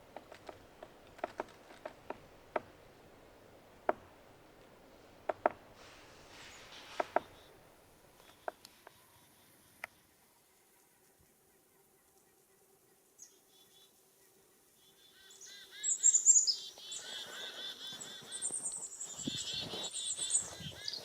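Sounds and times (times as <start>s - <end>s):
soft hiss: 0.0s - 16.9s
sharp clicks and pops: 5.3s - 5.6s.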